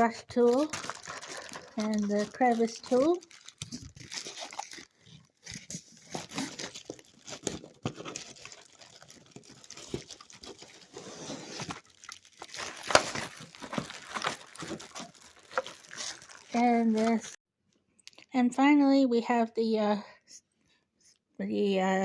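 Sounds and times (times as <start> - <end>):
plastic packaging crinkling: 0.0 - 17.4.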